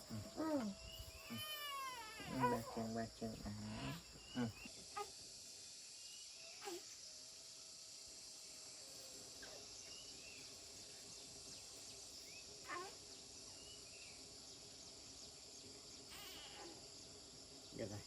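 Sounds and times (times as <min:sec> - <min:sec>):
insects droning: 0:00.0 - 0:18.0
brief insect chirps: 0:16.0 - 0:17.1.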